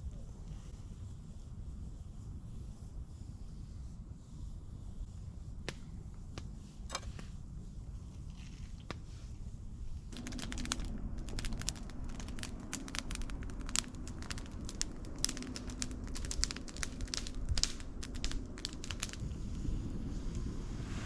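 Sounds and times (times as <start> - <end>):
campfire crackling: 5.2 - 21.0.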